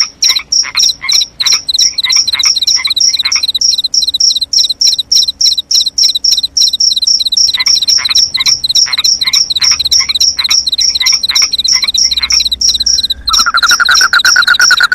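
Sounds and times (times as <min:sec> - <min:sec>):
crickets chirping: 0:00.0 - 0:14.9
frogs calling: 0:00.0 - 0:14.9.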